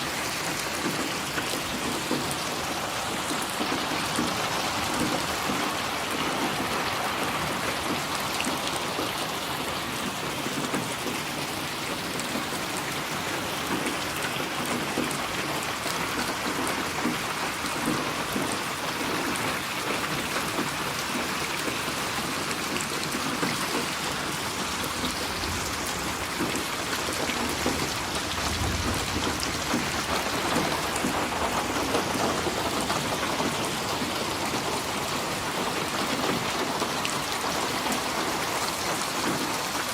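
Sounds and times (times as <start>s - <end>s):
heavy rain falling: 0.0s - 39.9s
low rumble of thunder: 24.9s - 33.5s.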